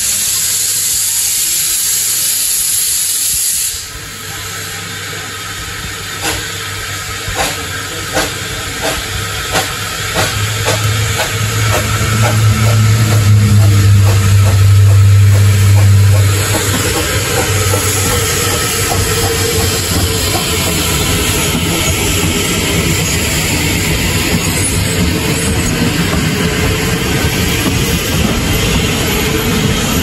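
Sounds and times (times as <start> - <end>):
train wheels clattering on rails: 6.2 - 6.6, 7.2 - 30.0.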